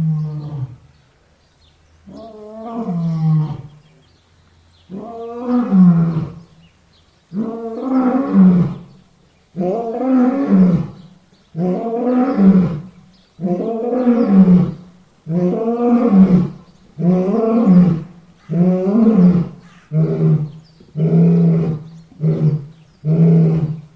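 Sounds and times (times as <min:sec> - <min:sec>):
lion roaring: 0:11.6 - 0:23.9.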